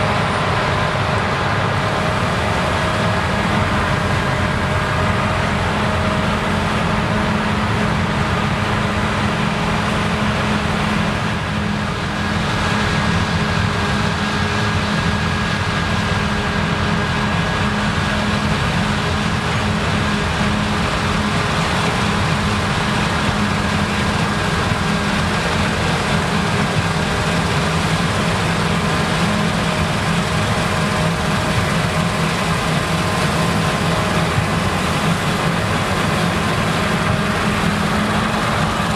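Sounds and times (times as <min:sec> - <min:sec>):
combine harvester drone: 0:00.0 - 0:38.9.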